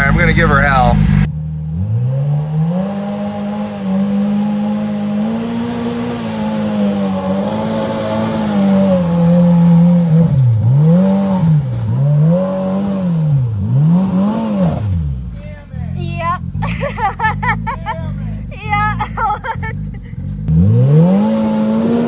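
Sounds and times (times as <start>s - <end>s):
engine revving at full throttle: 0.0s - 22.0s.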